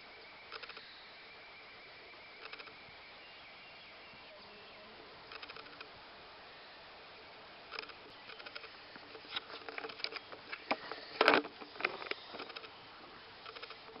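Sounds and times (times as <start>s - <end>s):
clicking and rustling: 7.7s - 12.7s, 13.4s - 14.0s.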